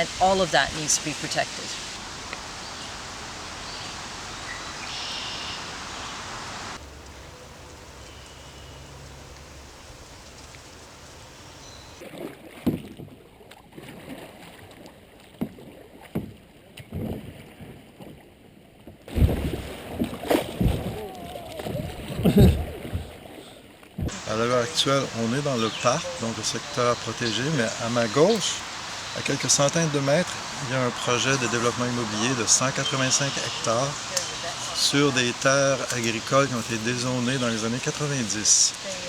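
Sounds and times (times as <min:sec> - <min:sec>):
paddle splashing in river: 0:00.0 - 0:39.0
steady noise: 0:24.1 - 0:39.0.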